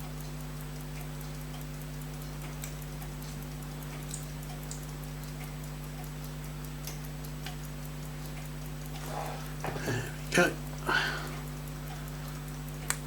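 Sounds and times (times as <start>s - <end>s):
electrical hum: 0.0s - 13.0s
fast watch ticking: 0.0s - 13.0s.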